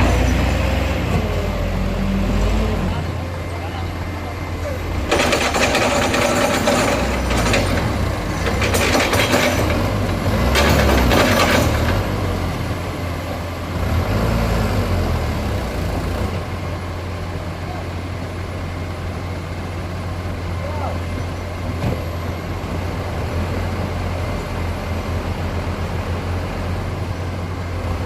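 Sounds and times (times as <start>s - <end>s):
excavator engine hum: 0.0s - 28.0s
soil rushing and clattering: 4.9s - 12.2s.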